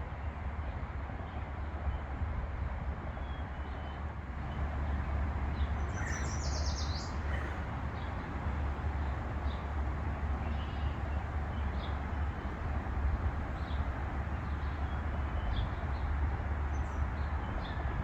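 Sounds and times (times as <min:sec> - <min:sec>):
low rumble and hiss: 0:00.0 - 0:18.0
small birds chirping: 0:04.4 - 0:17.9.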